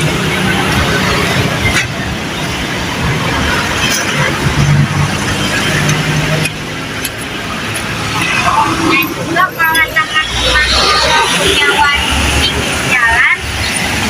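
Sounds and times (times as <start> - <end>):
road traffic passing: 0.0 - 14.0.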